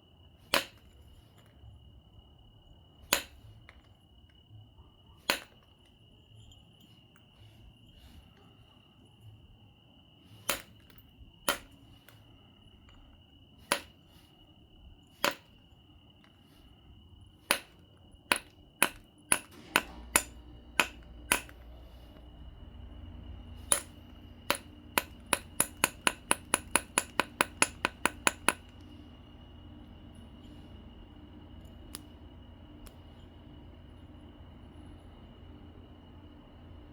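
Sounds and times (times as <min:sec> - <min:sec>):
stone tool clicking on glassy stone: 0:03.1 - 0:03.9, 0:05.2 - 0:05.7, 0:10.4 - 0:12.2, 0:12.9 - 0:14.1, 0:15.2 - 0:15.6, 0:17.4 - 0:21.6, 0:23.6 - 0:28.8.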